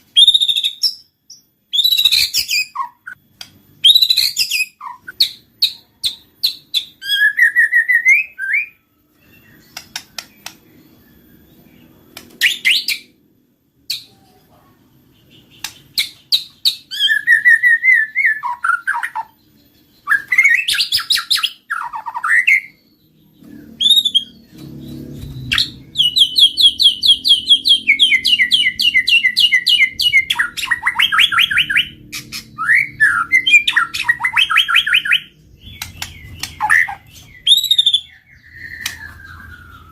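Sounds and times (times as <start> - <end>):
sharp clicks: 9.7 - 10.6
bird singing whistled phrases: 15.3 - 39.9.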